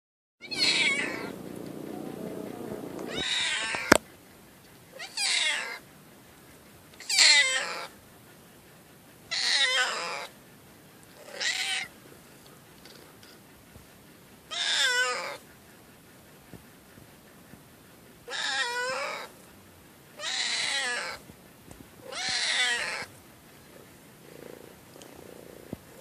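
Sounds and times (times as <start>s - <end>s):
cat meowing: 0.4s - 4.0s, 5.0s - 5.8s, 7.0s - 7.9s, 9.3s - 10.3s, 11.3s - 11.9s, 14.5s - 15.4s, 18.3s - 19.3s, 20.2s - 21.2s, 22.1s - 23.1s.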